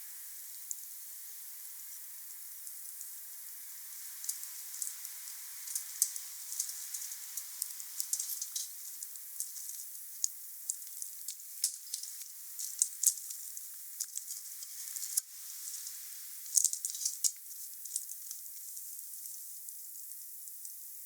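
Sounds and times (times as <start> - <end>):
fire hiss: 0.0 - 19.6
wood fire crackling and popping: 4.2 - 19.4.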